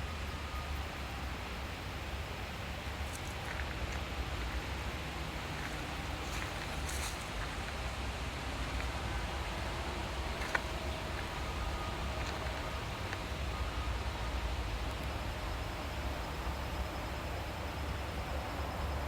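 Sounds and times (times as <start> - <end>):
rustling hiss: 0.0 - 16.5.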